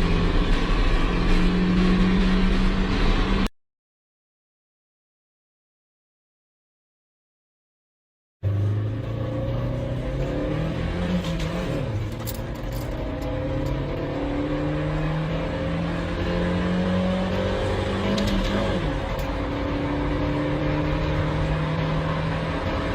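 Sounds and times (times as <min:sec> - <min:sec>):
car engine accelerating hard: 0:00.0 - 0:03.5, 0:08.4 - 0:22.9.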